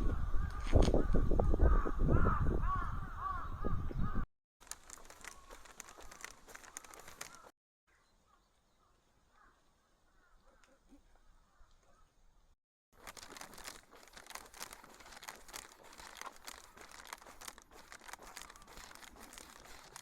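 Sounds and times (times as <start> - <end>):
birds calling: 0.1 - 20.0
faint clicks: 4.6 - 7.5.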